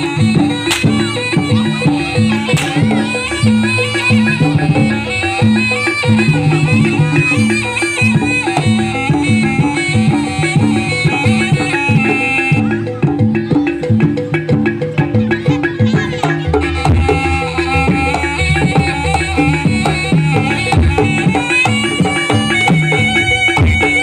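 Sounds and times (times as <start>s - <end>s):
gamelan ensemble music: 0.0s - 24.0s
hand drums: 0.0s - 24.0s.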